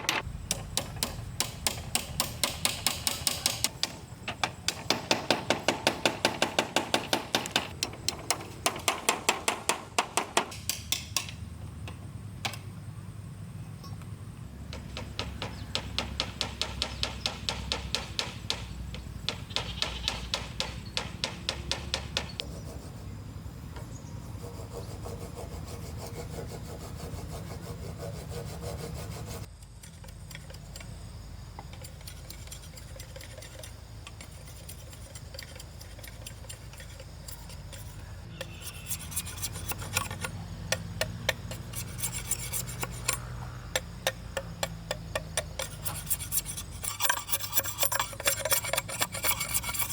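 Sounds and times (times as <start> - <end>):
hand tool working bamboo: 0.0 - 11.4, 24.5 - 49.9.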